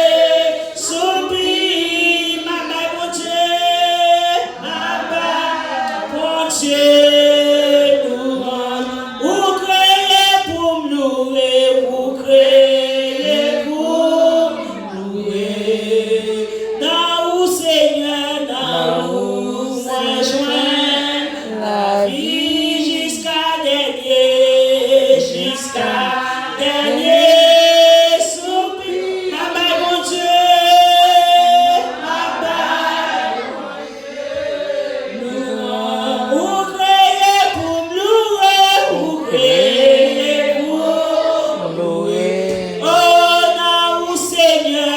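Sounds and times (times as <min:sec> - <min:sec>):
congregation singing: 0:00.0 - 0:44.9.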